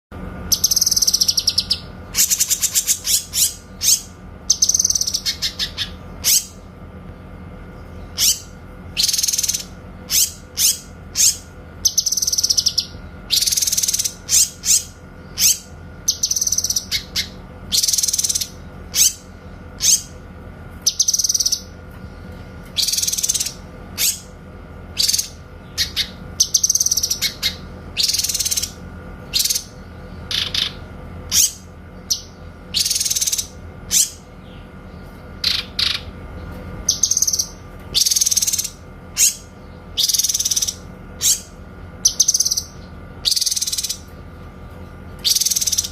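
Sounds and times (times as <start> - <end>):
bird giving sharp high calls: 8.1 - 20.2, 36.9 - 44.1.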